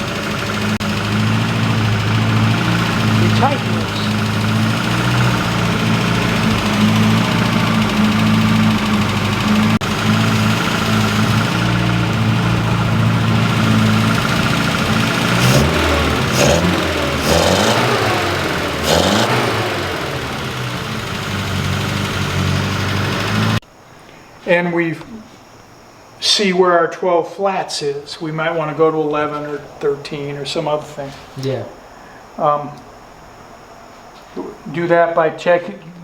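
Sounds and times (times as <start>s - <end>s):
car engine idling and revving: 0.0s - 23.6s.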